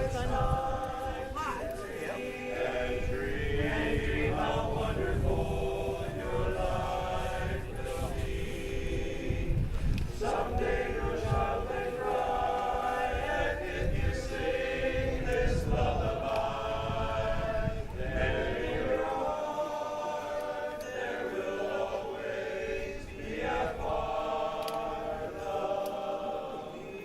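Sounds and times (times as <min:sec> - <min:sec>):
men's chorus singing a cappella: 0:00.0 - 0:27.0.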